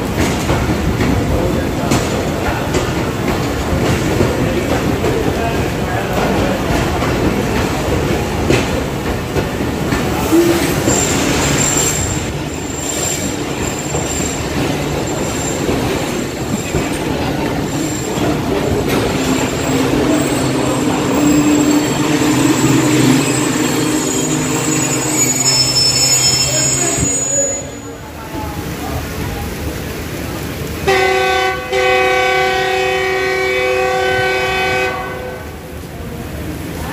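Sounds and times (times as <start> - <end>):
train wheels rumbling: 0.0 - 36.9
high wheel squeal: 10.2 - 28.1.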